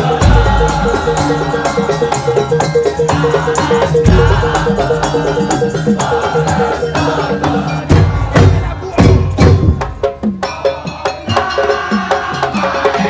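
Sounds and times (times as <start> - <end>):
heavy low drum strikes: 0.0 - 3.2, 4.0 - 6.1, 7.9 - 10.4
wooden percussion ensemble: 0.0 - 13.0.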